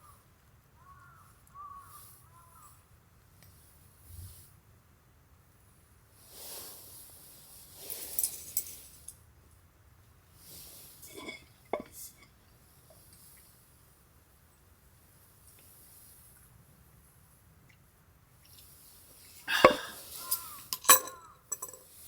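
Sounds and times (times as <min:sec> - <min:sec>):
small objects clinking and knocking: 0:19.6 - 0:21.9.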